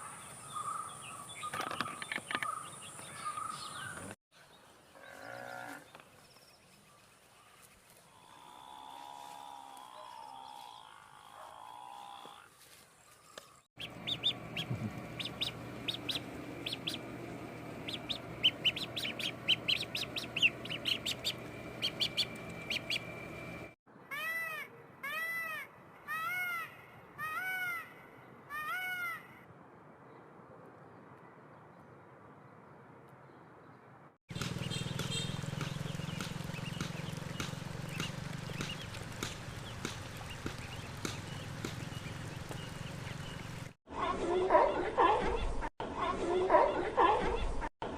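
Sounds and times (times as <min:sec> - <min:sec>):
bird calls: 0:00.0 - 0:08.8, 0:09.9 - 0:29.4, 0:34.3 - 0:43.8
rapid high bird chirping: 0:13.7 - 0:23.8, 0:34.3 - 0:43.7.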